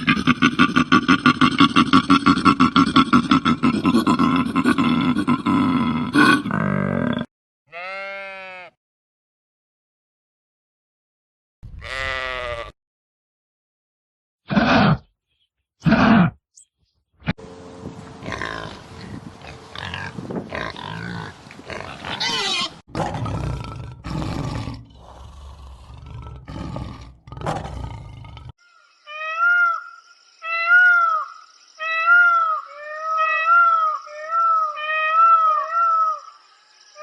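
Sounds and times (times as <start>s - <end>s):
large animal roaring and growling: 2.2s - 7.3s, 19.4s - 28.6s.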